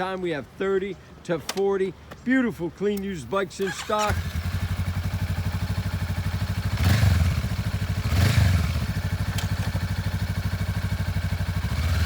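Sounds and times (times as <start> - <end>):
motorcycle engine idling: 3.6 - 12.0.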